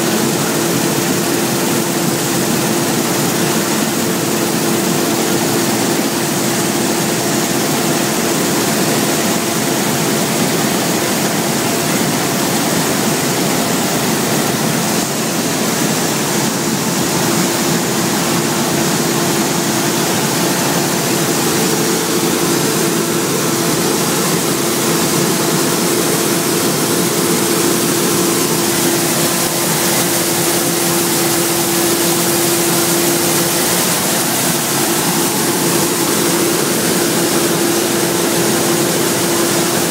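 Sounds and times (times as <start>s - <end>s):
combine harvester droning: 11.6s - 39.9s.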